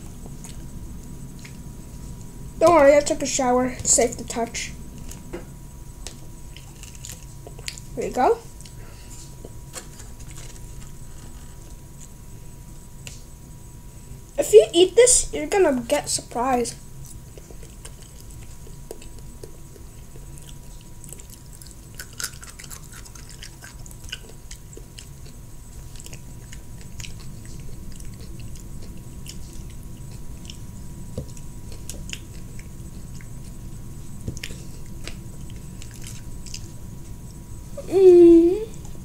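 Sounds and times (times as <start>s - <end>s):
low steady hum: 0.0s - 39.0s
chewing mouth clicks: 17.0s - 33.6s.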